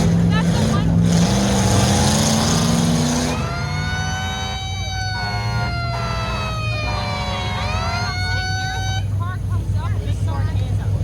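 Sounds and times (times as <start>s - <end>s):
truck engines running: 0.0s - 11.0s
siren wailing: 3.2s - 9.1s.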